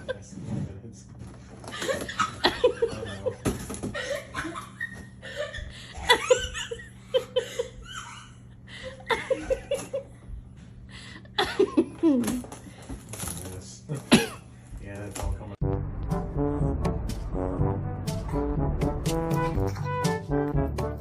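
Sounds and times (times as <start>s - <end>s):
breathy laughter: 1.7s - 10.2s
people laughing: 1.7s - 10.2s.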